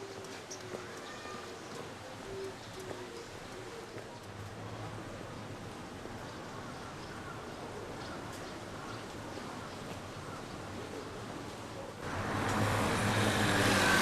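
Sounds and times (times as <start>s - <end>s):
faint bird calls: 0.0s - 4.3s
outdoor background noise: 0.0s - 14.0s.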